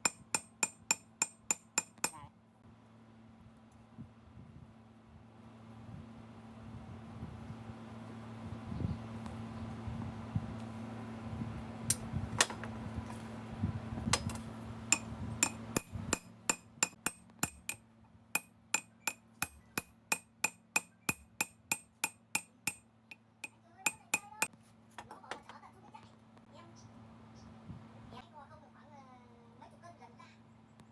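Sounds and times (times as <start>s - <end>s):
hammer striking metal: 0.0s - 2.3s, 14.2s - 17.8s, 18.4s - 22.8s, 23.4s - 24.5s.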